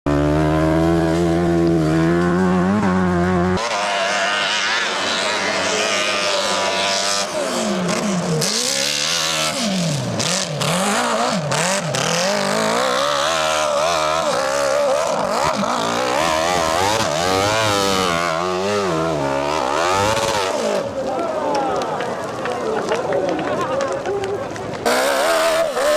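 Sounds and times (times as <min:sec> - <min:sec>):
motorcycle engine revving: 0:00.1 - 0:21.1, 0:24.4 - 0:25.9.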